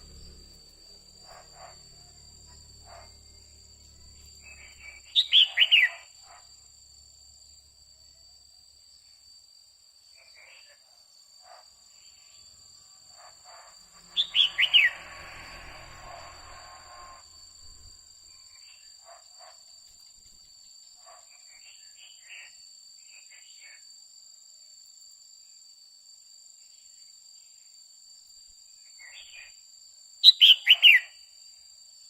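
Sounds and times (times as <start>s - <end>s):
bird calling downward notes: 0.0s - 6.1s, 14.0s - 17.9s
steady high-pitched tone: 13.3s - 18.1s.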